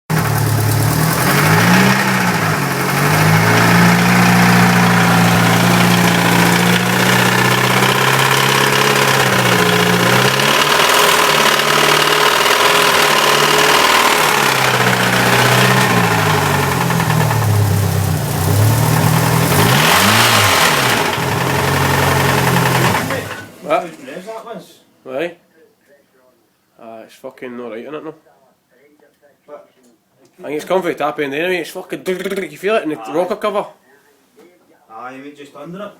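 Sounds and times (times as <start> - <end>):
car engine revving with knock: 0.1 - 23.6.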